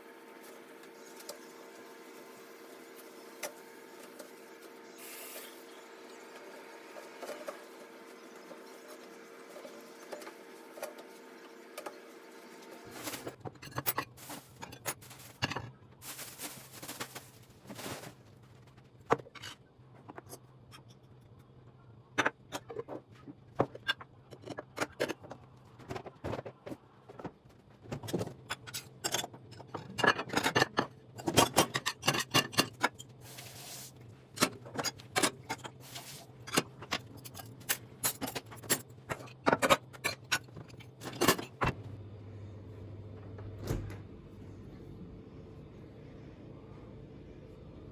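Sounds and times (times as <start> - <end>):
steady low hum: 41.7 - 47.9.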